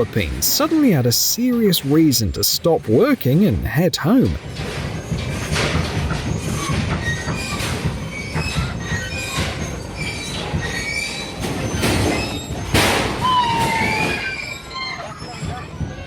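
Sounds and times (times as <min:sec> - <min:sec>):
metallic squeals and creaks: 0:06.3 - 0:15.7.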